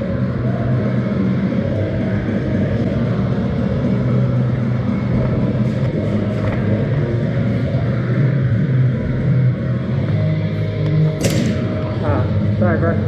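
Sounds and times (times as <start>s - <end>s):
short sharp clicks: 11.2s - 11.9s.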